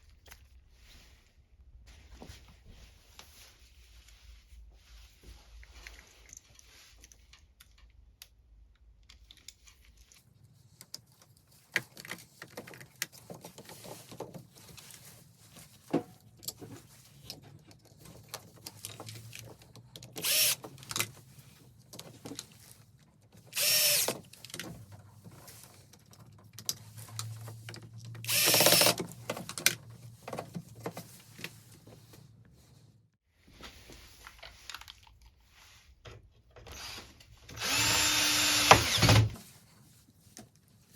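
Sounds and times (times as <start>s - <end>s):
power drill running: 20.2s - 20.6s, 23.6s - 24.1s, 28.3s - 29.0s, 36.7s - 39.4s.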